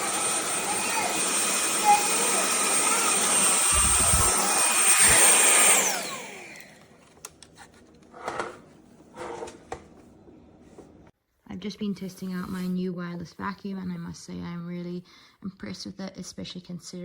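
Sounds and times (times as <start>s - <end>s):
stick vacuum whining: 0.0s - 10.2s.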